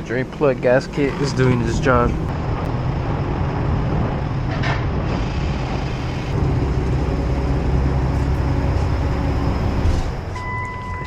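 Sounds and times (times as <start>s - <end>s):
car engine idling: 1.8s - 10.4s.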